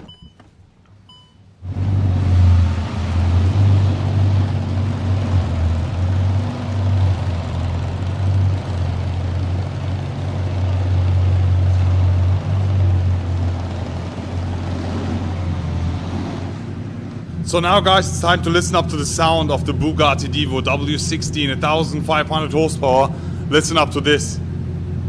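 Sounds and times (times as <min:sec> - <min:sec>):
car engine droning: 0:00.0 - 0:25.0.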